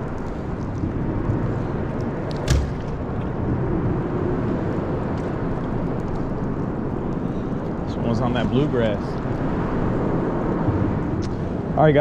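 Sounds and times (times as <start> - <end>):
low rumbling background noise: 0.0 - 12.0
sharp knock: 2.4 - 2.9.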